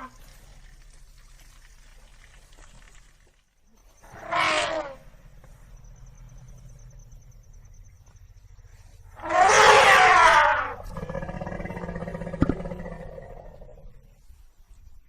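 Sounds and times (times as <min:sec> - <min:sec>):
elephant low call: 0:04.0 - 0:14.2
elephant harsh call: 0:09.1 - 0:13.0.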